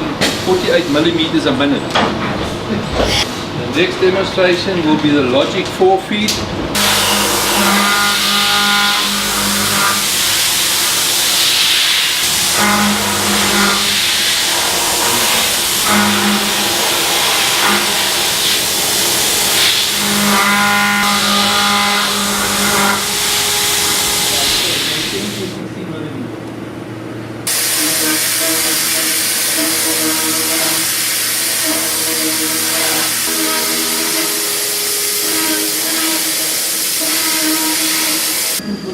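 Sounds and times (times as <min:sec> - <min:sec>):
milling machine hissing: 0:06.8 - 0:25.6, 0:27.5 - 0:38.6
humming tone: 0:31.6 - 0:38.9.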